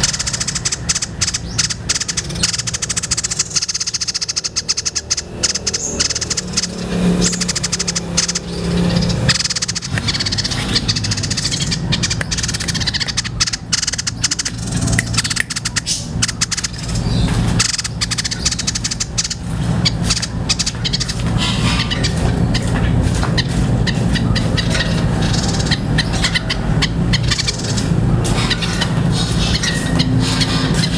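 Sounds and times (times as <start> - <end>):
bird chattering in clicking trills: 0.0 - 30.9.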